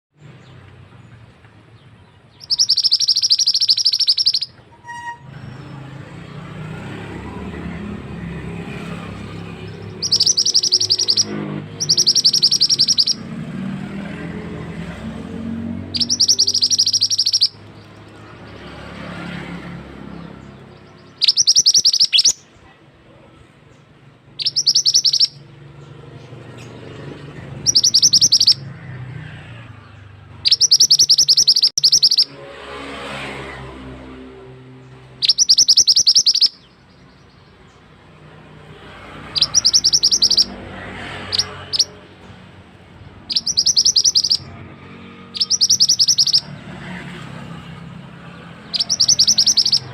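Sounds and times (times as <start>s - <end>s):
songbird trilling: 2.2s - 5.8s, 7.4s - 13.4s, 15.1s - 18.8s, 20.0s - 22.6s, 24.3s - 29.0s, 29.8s - 32.3s, 35.2s - 37.8s, 39.1s - 42.1s, 43.0s - 46.7s, 48.2s - 49.9s.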